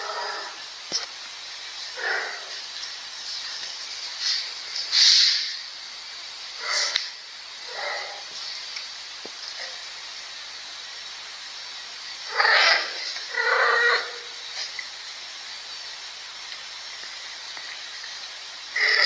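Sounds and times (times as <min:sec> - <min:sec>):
faint steady hiss: 0:00.0 - 0:19.0
cat yowling: 0:12.3 - 0:14.3.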